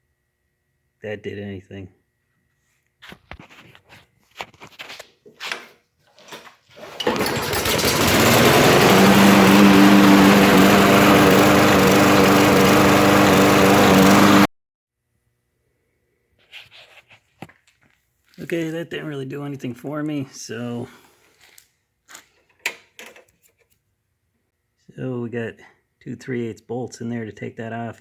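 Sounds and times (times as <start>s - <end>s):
lawn mower engine running: 6.8s - 14.5s.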